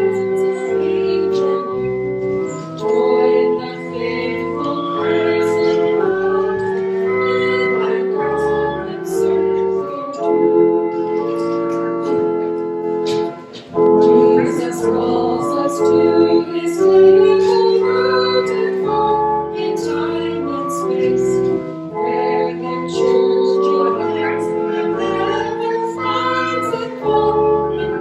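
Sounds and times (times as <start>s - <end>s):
voices singing: 0.0s - 10.5s, 13.8s - 28.0s
church organ playing a hymn: 0.0s - 28.0s.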